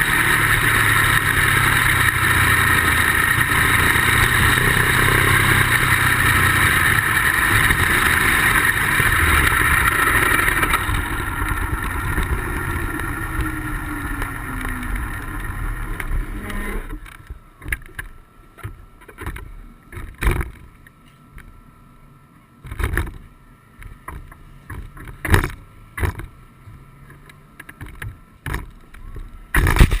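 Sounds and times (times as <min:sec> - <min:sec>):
motorcycle engine winding down: 0:00.0 - 0:17.9
knocks and bumps: 0:27.7 - 0:30.0.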